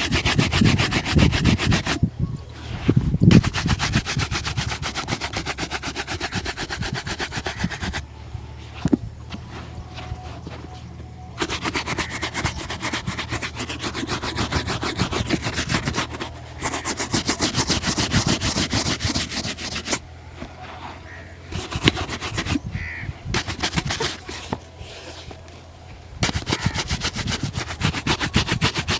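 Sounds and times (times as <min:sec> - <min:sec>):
brush buffing a shoe: 0:00.0 - 0:02.0, 0:02.7 - 0:08.0, 0:11.4 - 0:20.0, 0:21.5 - 0:22.6, 0:23.3 - 0:25.4, 0:26.2 - 0:28.9.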